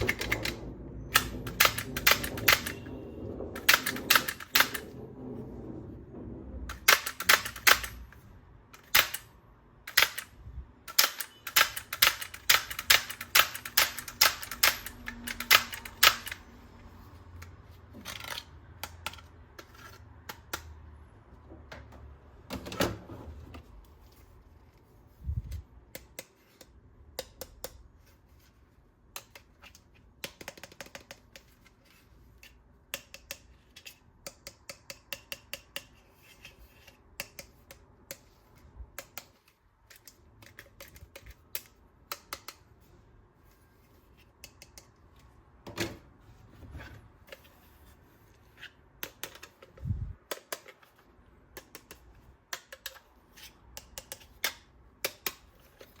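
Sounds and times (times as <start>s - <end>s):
plastic toy parts clicking: 0.0s - 5.0s, 6.7s - 16.5s, 17.4s - 20.7s, 29.1s - 31.8s, 32.9s - 36.0s, 36.8s - 42.7s, 51.5s - 53.1s, 53.7s - 56.0s.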